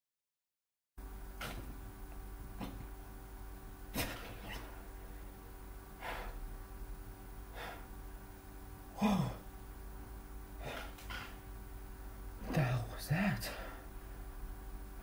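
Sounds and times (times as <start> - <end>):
man sighing: 9.0 - 9.4.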